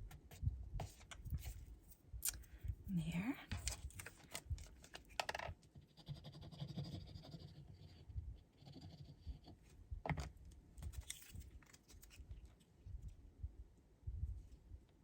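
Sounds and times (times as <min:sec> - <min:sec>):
paper rustling and scraping: 0:10.8 - 0:12.3.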